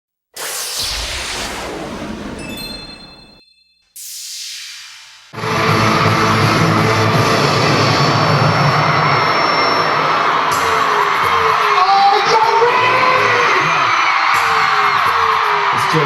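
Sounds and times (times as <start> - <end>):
sharp hit: 0.4 - 10.7
crowd screaming and cheering: 5.4 - 16.0
live concert music: 5.4 - 16.0.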